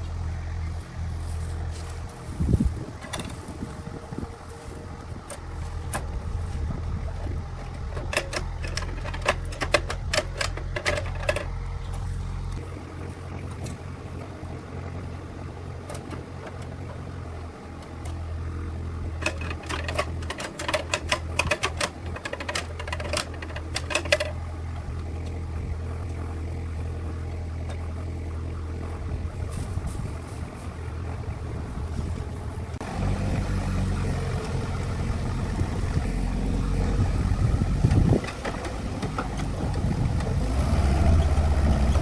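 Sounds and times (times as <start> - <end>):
low mechanical hum: 0.0 - 42.0
metallic clicking and rattling: 7.7 - 12.0, 19.2 - 24.4.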